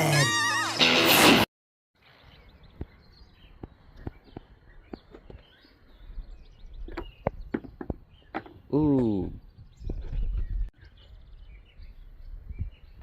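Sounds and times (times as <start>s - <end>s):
faint bird chirps: 8.1s - 13.0s.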